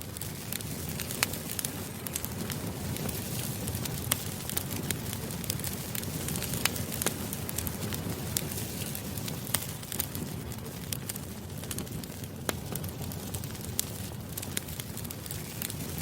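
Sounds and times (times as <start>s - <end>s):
campfire flames rushing: 0.0s - 16.0s
fire crackles and pops: 0.0s - 16.0s.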